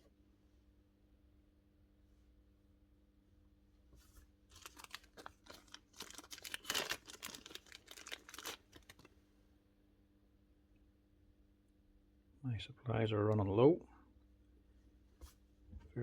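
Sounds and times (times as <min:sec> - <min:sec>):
plastic packaging rustling: 0:04.5 - 0:09.1.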